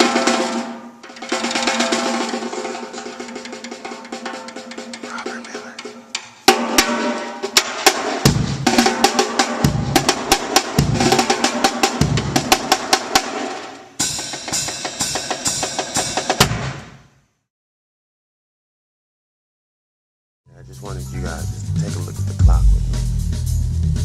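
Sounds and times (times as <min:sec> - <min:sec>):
jazz drum kit played fast: 0:00.0 - 0:16.8, 0:20.5 - 0:24.0.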